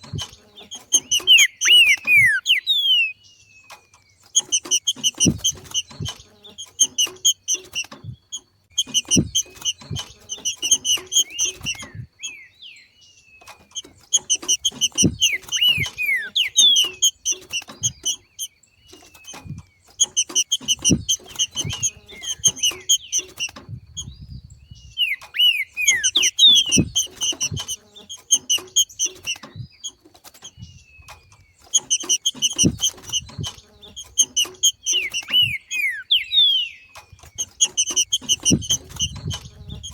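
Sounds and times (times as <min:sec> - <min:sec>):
bird chattering rapid high notes: 0:01.0 - 0:03.2, 0:14.2 - 0:18.1, 0:25.0 - 0:29.3
falling whistled bird notes: 0:01.0 - 0:03.2, 0:24.9 - 0:27.0.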